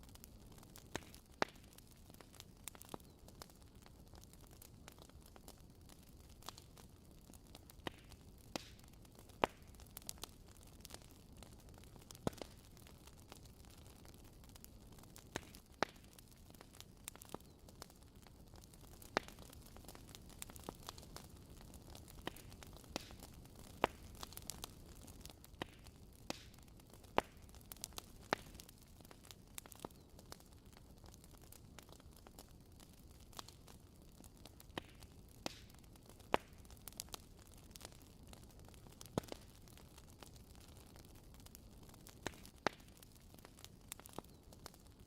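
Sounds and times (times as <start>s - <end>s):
fire popping and snapping: 0.0s - 45.0s.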